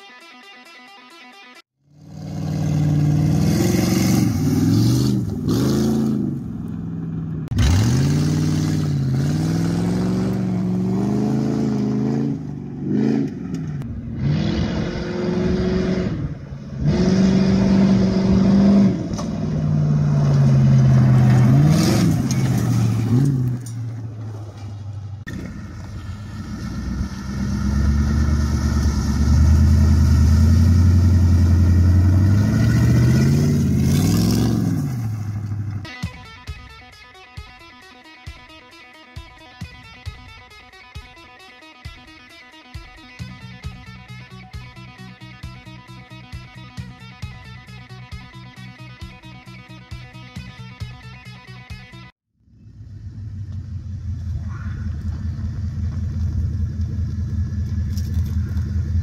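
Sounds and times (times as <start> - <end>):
car engine revving: 1.9 - 35.9.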